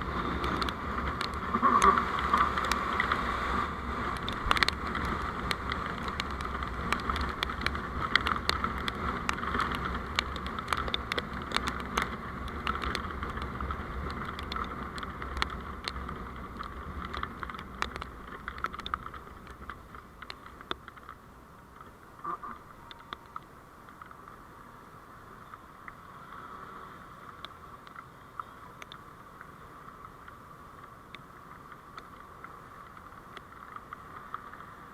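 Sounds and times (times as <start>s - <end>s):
vehicle road and wind noise: 0.0s - 34.9s
sharp clicks and rattles: 4.1s - 24.3s.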